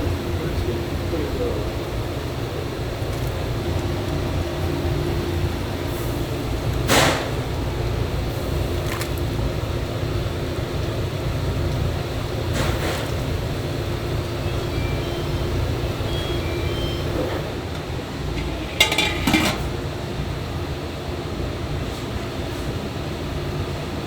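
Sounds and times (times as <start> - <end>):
restaurant kitchen rumble and hum: 0.0 - 24.0
utensils or dishes clattering: 18.3 - 19.8.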